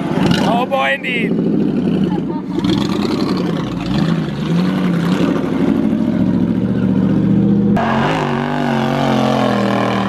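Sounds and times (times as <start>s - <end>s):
car engine revving hard: 2.6s - 10.0s.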